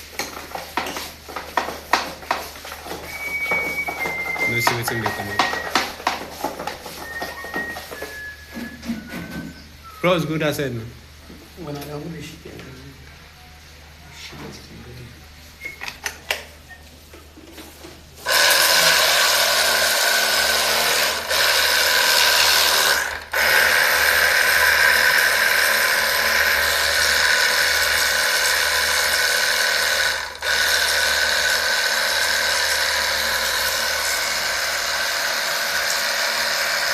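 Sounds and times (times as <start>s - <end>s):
power tool running: 0.0s - 9.6s, 18.2s - 36.9s.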